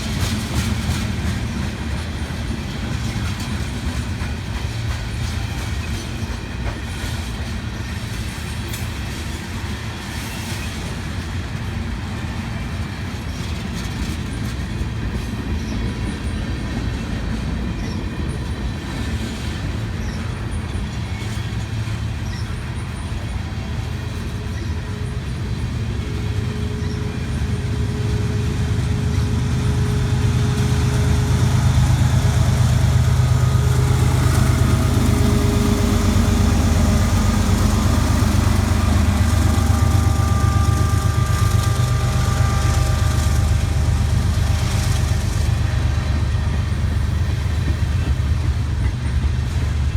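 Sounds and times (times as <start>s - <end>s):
freight train cars clattering: 0.0s - 49.9s
steady engine hum: 23.8s - 49.9s.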